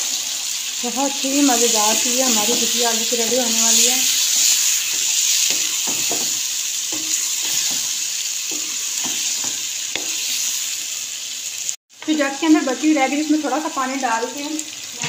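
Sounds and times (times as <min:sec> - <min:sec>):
potatoes sizzling in a pan: 0:00.0 - 0:15.0
spatula scraping and tapping pan: 0:03.5 - 0:10.3.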